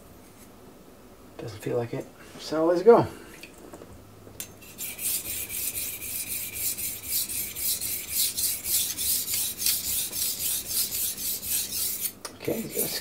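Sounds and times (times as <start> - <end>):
knife scraping on sharpening stone: 4.6 - 13.0.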